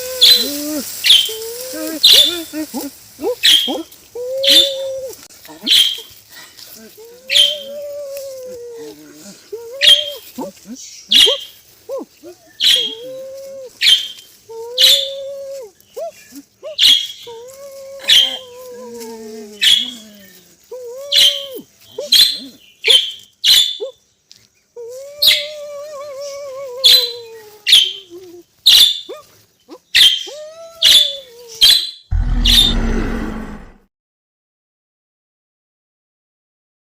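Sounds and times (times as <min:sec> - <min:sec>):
wavering animal calls: 0:00.0 - 0:24.0, 0:24.8 - 0:33.8
sharp high animal chirps: 0:05.6 - 0:06.2, 0:12.5 - 0:13.1, 0:13.8 - 0:14.3, 0:16.8 - 0:17.3, 0:22.0 - 0:24.0.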